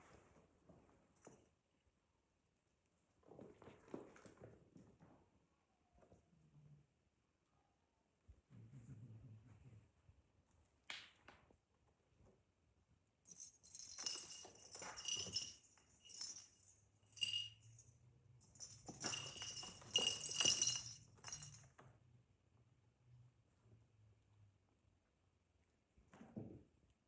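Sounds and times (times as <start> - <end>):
small bell jingling: 13.3 - 21.7.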